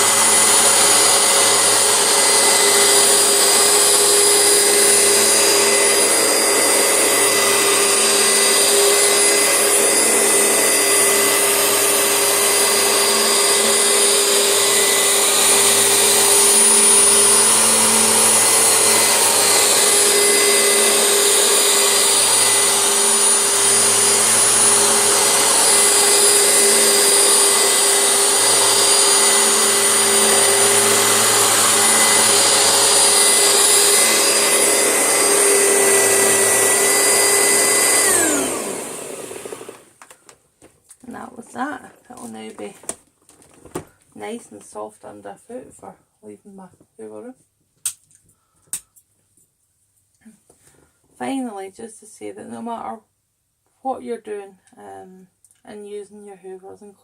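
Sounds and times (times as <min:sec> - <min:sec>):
vacuum cleaner running on carpet: 0:00.0 - 0:40.0.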